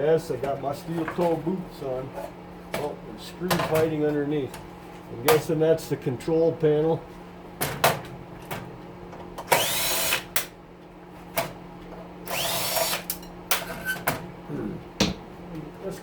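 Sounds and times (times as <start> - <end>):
cordless drill whirring: 9.5 - 10.3, 12.2 - 13.1.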